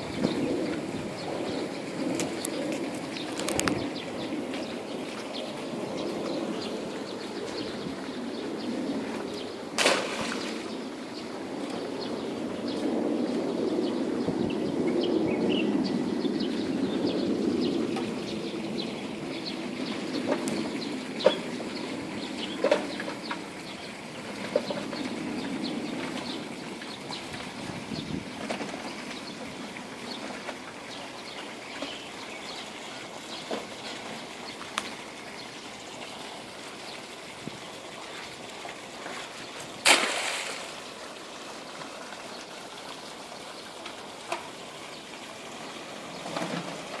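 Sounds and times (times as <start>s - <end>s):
water trickling and splashing: 0.0s - 47.0s
loud sharp splash: 9.8s - 10.8s, 39.8s - 40.8s.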